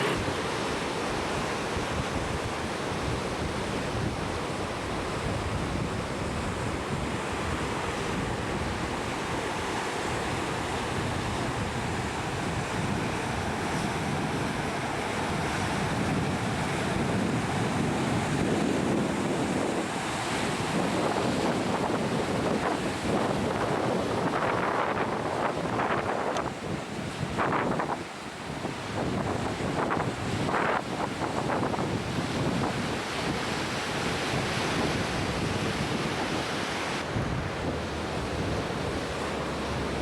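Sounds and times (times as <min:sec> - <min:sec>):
ocean waves rushing: 0:00.0 - 0:40.0
wind buffeting microphone: 0:00.0 - 0:40.0.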